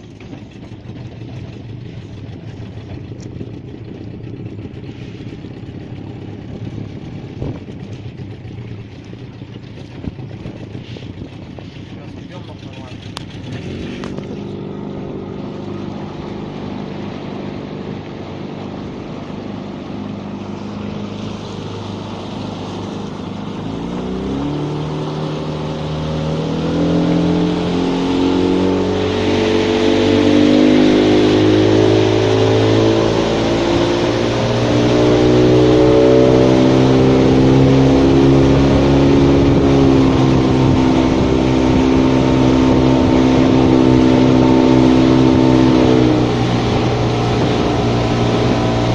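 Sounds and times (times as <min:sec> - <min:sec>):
vehicle engine speeding up: 0:12.7 - 0:48.9.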